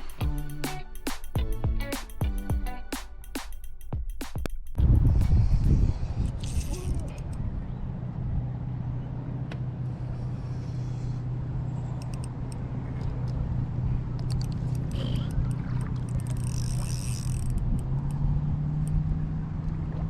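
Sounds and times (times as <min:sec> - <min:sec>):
wind buffeting microphone: 0:04.8 - 0:10.4
steady low hum: 0:04.8 - 0:20.0
light clicks: 0:12.0 - 0:13.4.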